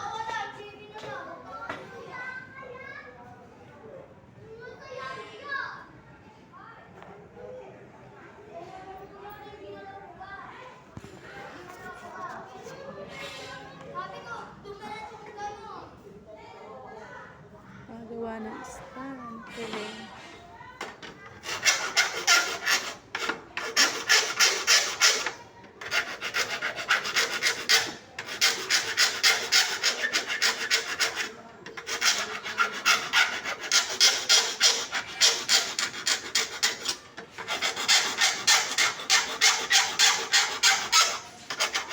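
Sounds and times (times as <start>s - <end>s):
hand tool strokes on wood: 21.4s - 41.9s.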